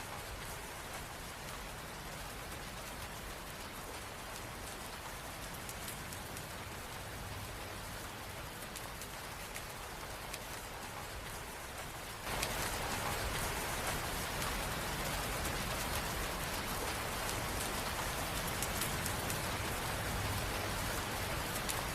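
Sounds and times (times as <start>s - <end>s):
raindrop ticks: 0.1s - 21.9s
rain hissing: 12.2s - 21.9s.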